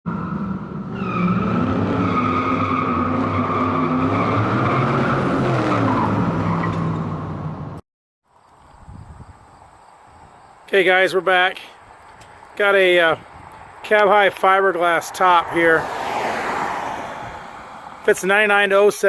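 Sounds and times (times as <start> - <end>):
car engine revving: 0.1 - 7.8.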